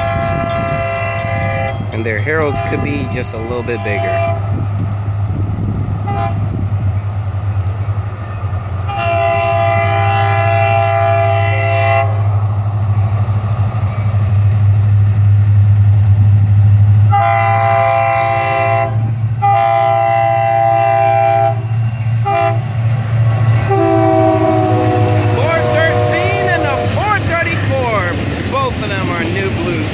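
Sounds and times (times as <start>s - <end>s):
locomotive air horn blasts: 0.0s - 4.4s, 6.0s - 6.4s, 8.9s - 12.2s, 17.1s - 21.6s, 22.2s - 22.6s, 23.6s - 27.2s
diesel engine rumble: 0.0s - 29.9s.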